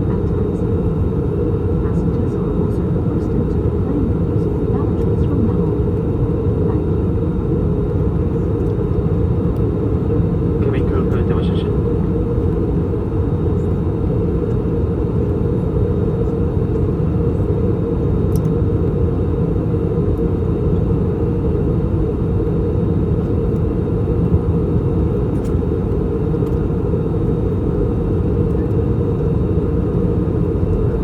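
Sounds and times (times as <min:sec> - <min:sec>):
airplane cabin roar: 0:00.0 - 0:31.0.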